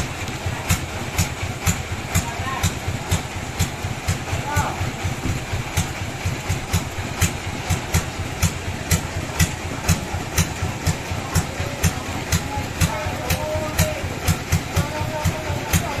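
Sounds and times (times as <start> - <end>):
sawmill machinery knocking: 0.0 - 16.0.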